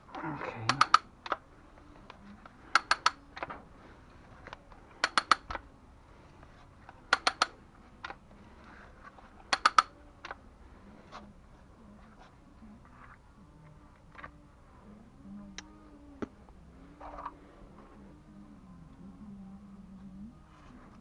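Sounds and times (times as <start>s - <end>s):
sharp metallic clicks: 0.1s - 1.4s, 2.7s - 3.2s, 5.0s - 5.6s, 7.1s - 8.2s, 9.5s - 9.9s.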